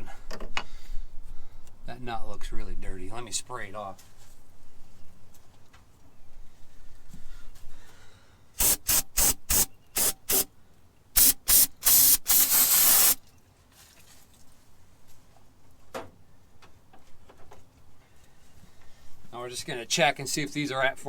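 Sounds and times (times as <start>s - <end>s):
aerosol can spraying: 8.6s - 10.5s, 11.2s - 13.2s.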